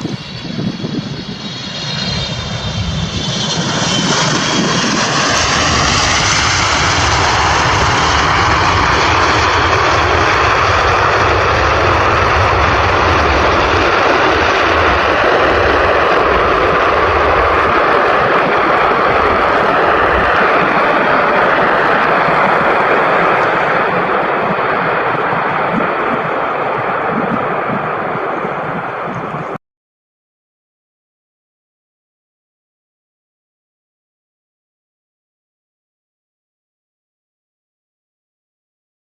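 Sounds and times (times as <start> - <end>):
aircraft engines roaring: 0.0 - 29.6.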